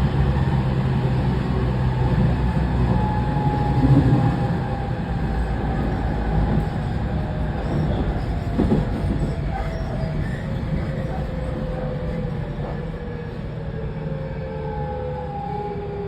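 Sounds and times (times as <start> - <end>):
train wheels rumbling on rail: 0.0 - 16.0
short wheel squeal: 7.6 - 11.5.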